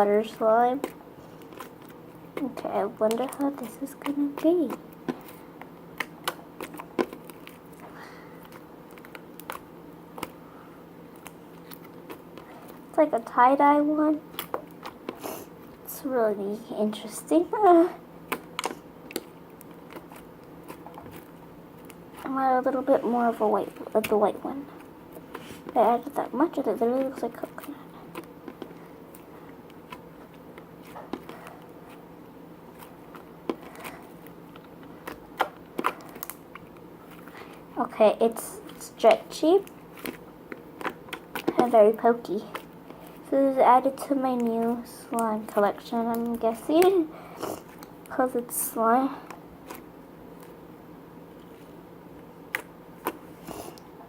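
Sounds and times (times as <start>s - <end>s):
slime kneaded by hand: 0.0s - 50.6s
faint steady hum: 0.0s - 54.0s
small wet clicks and pops: 0.8s - 10.4s, 11.1s - 12.8s, 14.3s - 15.8s, 18.2s - 22.3s, 32.7s - 37.4s, 38.6s - 43.2s, 44.3s - 46.9s, 47.7s - 48.2s, 52.5s - 53.2s.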